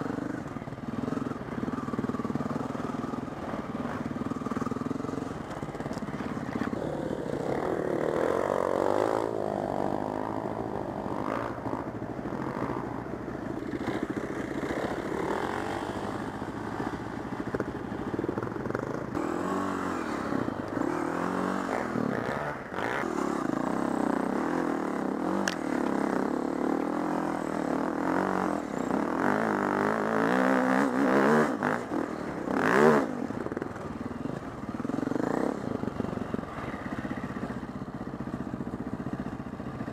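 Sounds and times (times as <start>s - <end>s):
dirt bike engine revving: 0.0s - 37.5s.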